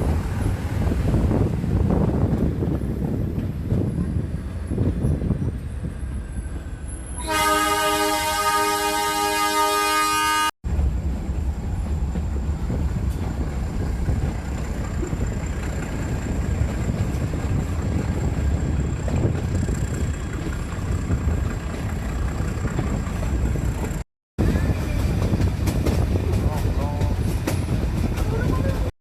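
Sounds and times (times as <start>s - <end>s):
train horn: 7.2s - 10.5s
vehicle engine rumble: 10.6s - 28.9s.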